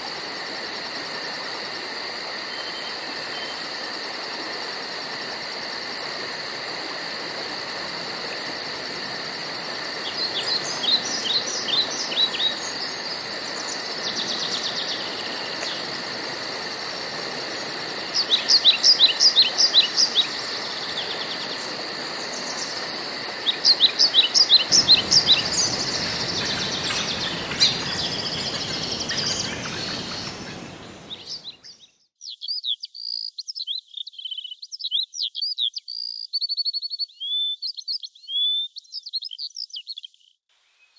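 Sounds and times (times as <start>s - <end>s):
steady high hiss: 0.0s - 31.7s
birds chirping: 9.8s - 31.9s.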